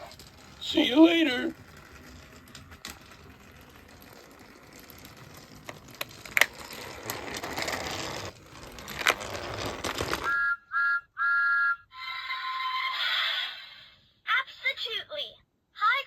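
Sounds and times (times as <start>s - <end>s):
toy train grinding rattling whir: 0.0s - 10.3s
toy train mechanism clicking: 0.0s - 10.3s.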